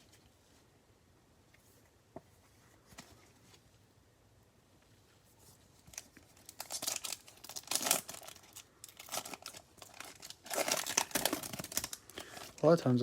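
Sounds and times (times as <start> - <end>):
card pack wrapper tearing: 6.0 - 12.6.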